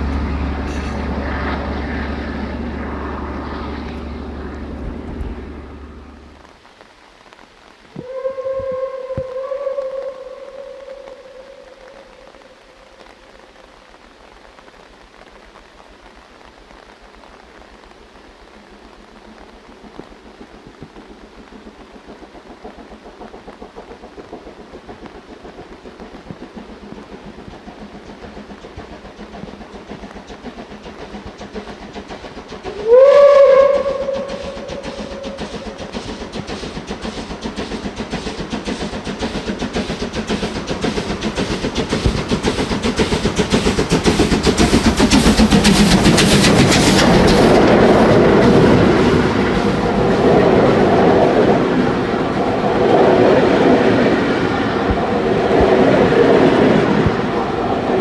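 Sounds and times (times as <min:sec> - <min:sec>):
train wheels clickety-clack: 0:00.0 - 0:05.4, 0:19.3 - 0:58.0
steam locomotive chuffing: 0:00.0 - 0:06.4, 0:20.2 - 0:58.0
steam locomotive whistle: 0:08.0 - 0:12.4, 0:32.6 - 0:36.0.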